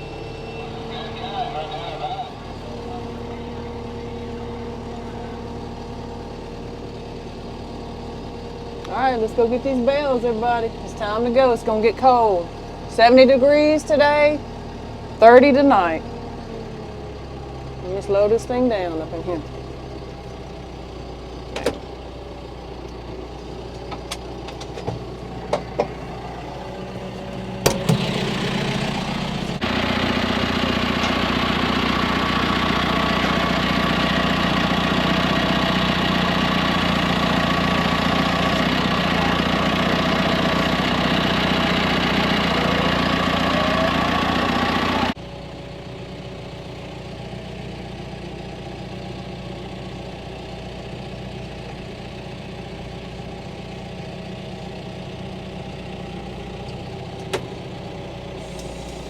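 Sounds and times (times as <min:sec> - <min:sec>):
tractor engine running: 0:00.0 - 0:59.0
sharp knocks and clanks: 0:23.8 - 0:26.1, 0:27.2 - 0:29.6.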